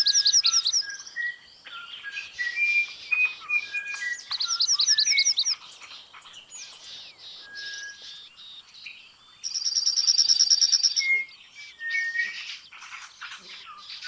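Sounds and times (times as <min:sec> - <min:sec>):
bird chirps: 0:00.0 - 0:14.0.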